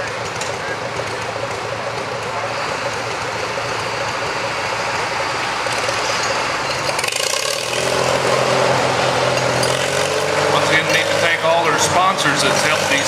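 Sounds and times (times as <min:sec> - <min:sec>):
tractor engine idling: 0:00.0 - 0:07.8.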